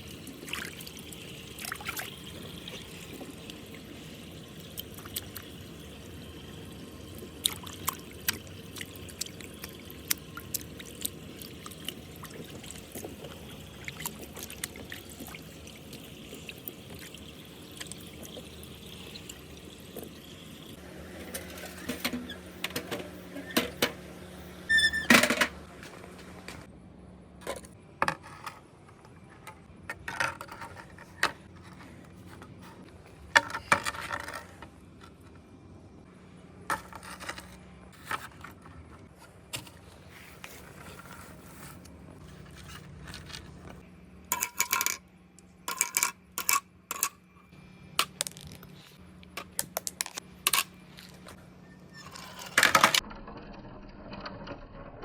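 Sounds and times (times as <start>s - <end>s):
marbles rolling and clacking: 33.4s - 34.7s, 44.3s - 45.0s, 45.7s - 47.1s.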